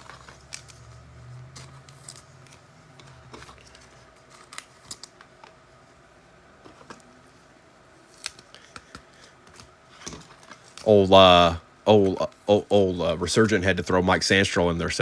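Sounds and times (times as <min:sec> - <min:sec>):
trading cards clicking and rustling: 0:00.0 - 0:05.6, 0:08.1 - 0:11.1.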